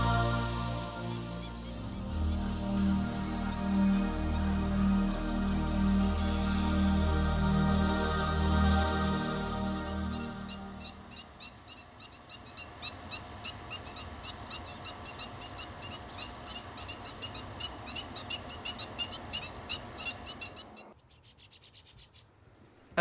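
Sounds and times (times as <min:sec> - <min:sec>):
birds chirping: 0:00.0 - 0:03.4, 0:09.9 - 0:23.0.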